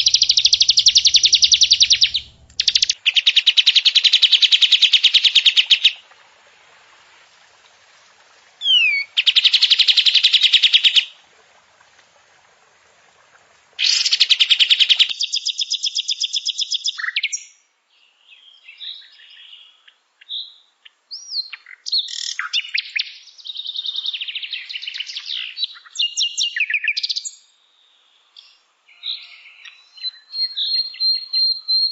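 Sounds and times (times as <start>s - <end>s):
bird song chattering and whistles: 0.0s - 6.0s, 8.6s - 11.1s, 13.8s - 17.6s, 21.1s - 27.4s, 28.4s - 31.9s
bird trills: 0.0s - 6.0s.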